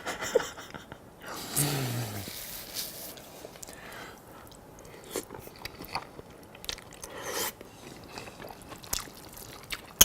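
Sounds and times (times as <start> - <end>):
person chewing food: 3.1 - 10.0.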